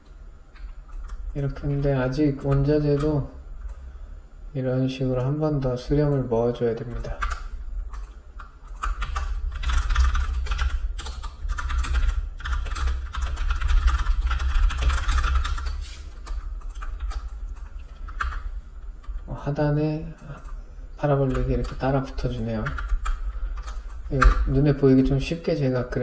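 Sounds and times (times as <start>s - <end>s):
computer keyboard typing: 0.9s - 3.9s, 6.9s - 19.2s, 20.2s - 25.1s.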